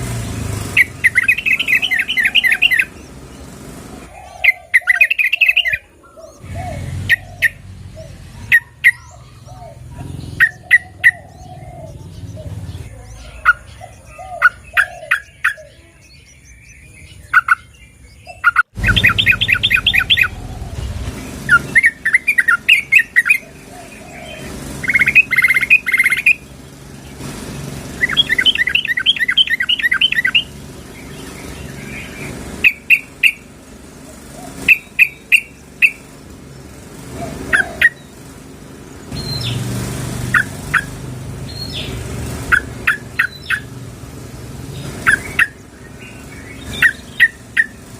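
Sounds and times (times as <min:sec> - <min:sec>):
bird chattering calls: 0:00.6 - 0:43.8, 0:44.6 - 0:47.9.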